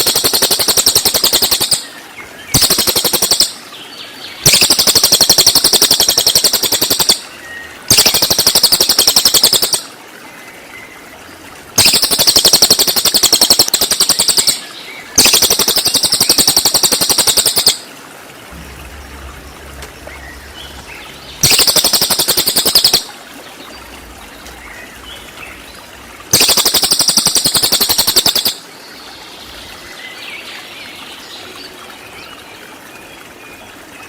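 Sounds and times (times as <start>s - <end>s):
rattling rapid bird song bursts: 0.0s - 1.8s, 2.5s - 3.5s, 4.4s - 7.2s, 7.9s - 9.9s, 11.8s - 17.8s, 20.4s - 28.6s.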